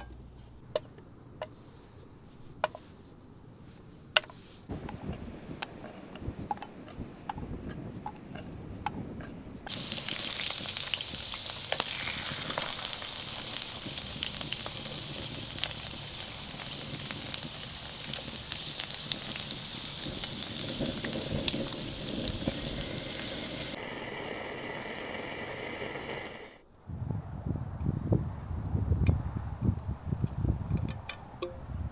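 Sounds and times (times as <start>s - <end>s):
food sizzling in a hot pan: 9.7s - 26.5s.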